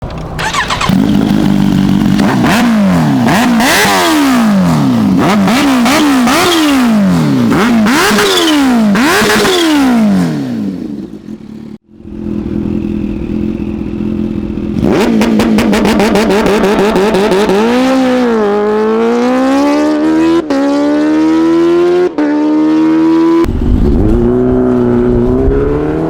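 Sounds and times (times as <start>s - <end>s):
motorcycle engine idling: 0.0s - 3.2s, 10.8s - 14.8s
motorcycle engine revving: 0.0s - 26.0s.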